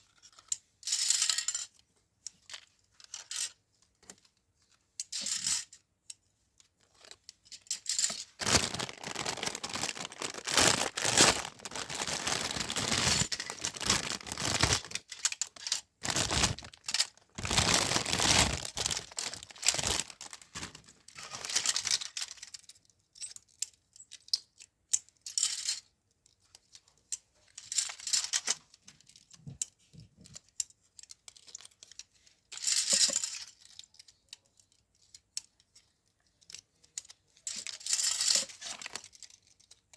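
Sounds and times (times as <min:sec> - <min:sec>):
packaging tearing and rustling: 0:08.4 - 0:22.0.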